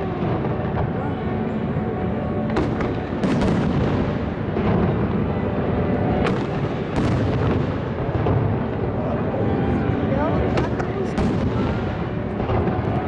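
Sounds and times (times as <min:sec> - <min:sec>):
fireworks booming: 0:00.0 - 0:01.2, 0:02.4 - 0:09.0, 0:10.5 - 0:13.0
sharp firework cracks: 0:02.5 - 0:04.8.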